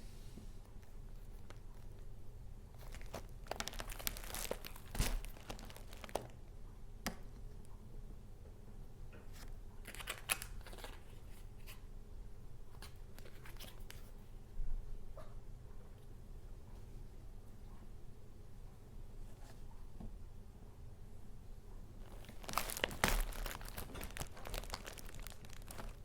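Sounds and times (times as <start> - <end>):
paper crinkling and rustling: 2.7 - 6.4, 9.4 - 11.8, 12.7 - 14.1, 22.0 - 26.0
sharp paper crackle: 2.8 - 6.4, 22.0 - 26.0.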